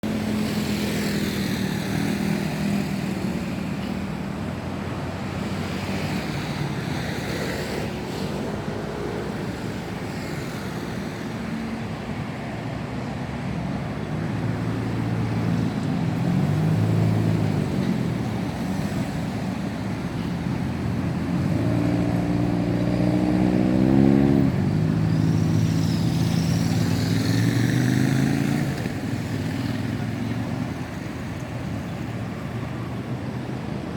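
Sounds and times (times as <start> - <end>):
car engines passing: 0.0 - 33.9
motorcycle engines passing: 13.0 - 33.9.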